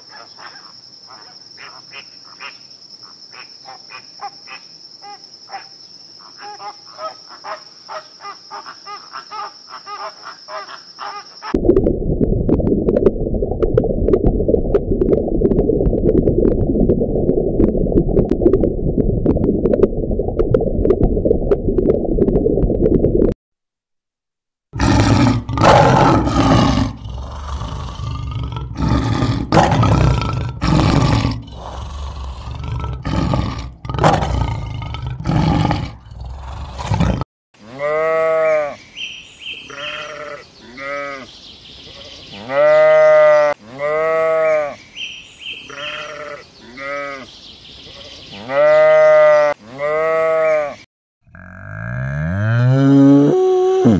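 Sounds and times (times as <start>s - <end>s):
lion roaring and grunting: 24.8s - 37.3s
sheep bleating: 37.6s - 38.8s, 39.7s - 41.2s, 42.3s - 44.8s, 45.7s - 47.2s, 48.3s - 50.8s.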